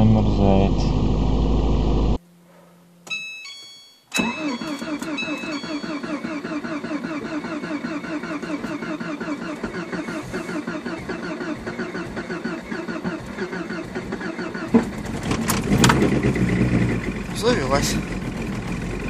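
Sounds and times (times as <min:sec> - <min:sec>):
starter motor cranking engine: 0:04.2 - 0:19.0.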